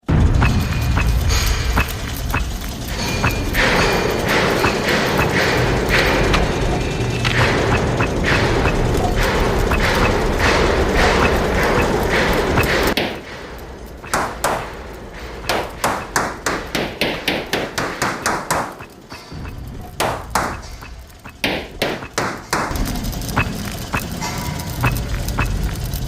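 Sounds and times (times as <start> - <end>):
dense loud din: 0.0 - 26.0
thuds and knocks: 0.1 - 22.8
sharp separate knocks: 14.0 - 22.8.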